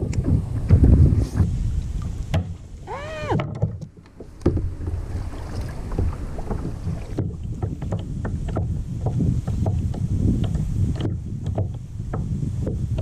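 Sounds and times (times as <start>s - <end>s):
water lapping against kayak: 0.0s - 13.0s
wind on microphone: 0.0s - 13.0s
clicks and knocks from hull: 3.3s - 13.0s.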